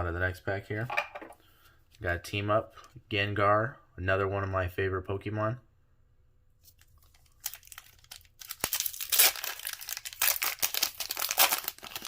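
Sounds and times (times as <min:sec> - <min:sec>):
foil wrapper crinkling and tearing: 0:06.7 - 0:12.0.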